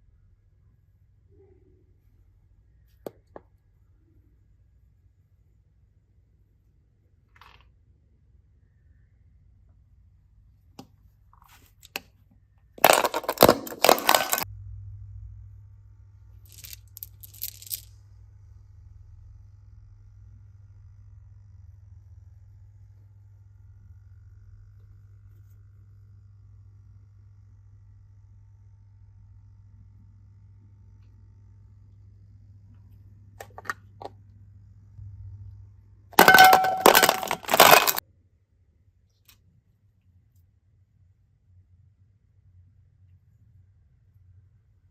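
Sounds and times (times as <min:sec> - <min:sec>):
small hard objects clattering: 0:12.8 - 0:14.4, 0:16.5 - 0:17.9, 0:36.2 - 0:38.0
steady low hum: 0:14.4 - 0:17.2.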